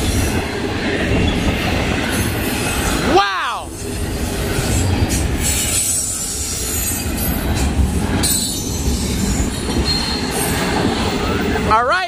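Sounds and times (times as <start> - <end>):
train wheels rumbling on rail: 0.0 - 12.0
high thin wheel squeal: 8.2 - 10.6.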